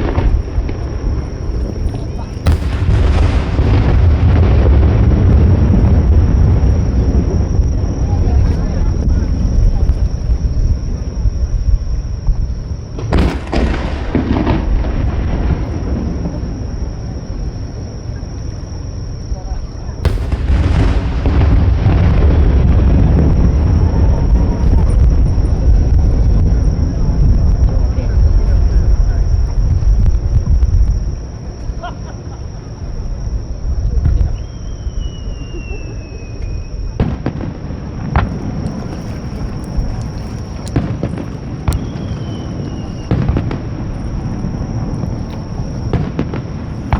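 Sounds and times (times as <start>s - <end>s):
firework shell bursting: 0.0s - 6.1s, 13.0s - 15.8s, 20.0s - 23.6s
firework bursting and crackling: 0.0s - 18.8s, 20.0s - 31.8s, 32.7s - 46.9s
steady low rumble: 0.0s - 34.4s, 36.4s - 46.9s
firework whistle: 19.7s - 27.6s, 33.9s - 46.9s.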